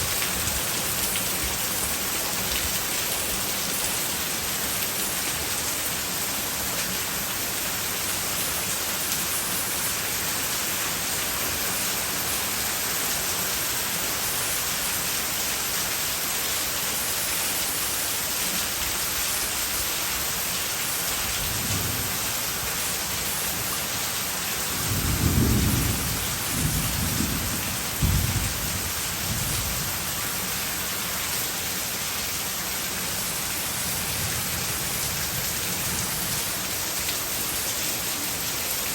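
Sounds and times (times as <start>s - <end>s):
heavy rain: 0.0s - 38.9s
thunder rumbles: 24.8s - 29.9s.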